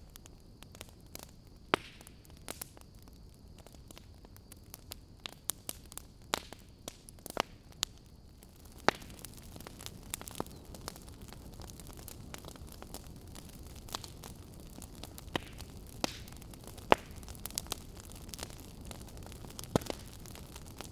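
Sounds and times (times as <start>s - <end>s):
fire crackling and popping: 0.0s - 20.9s.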